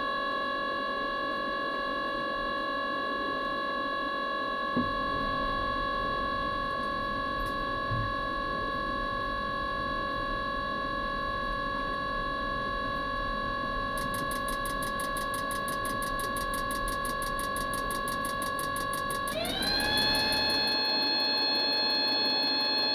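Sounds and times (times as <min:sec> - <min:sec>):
heater motor whine: 0:00.0 - 0:22.9
fast even ticking: 0:14.0 - 0:20.8.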